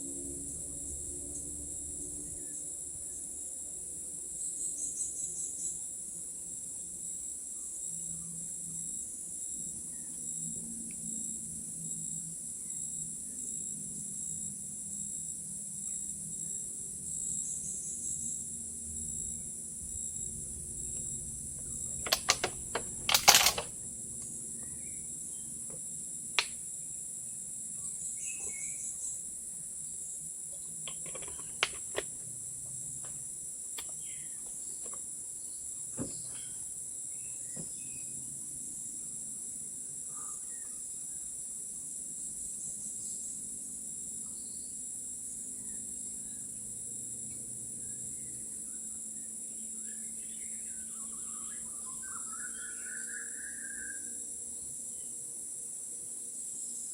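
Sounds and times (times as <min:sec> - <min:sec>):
insects chirping chorus: 0:00.0 - 0:56.9
sharp clicks: 0:22.0 - 0:24.3, 0:30.9 - 0:32.1.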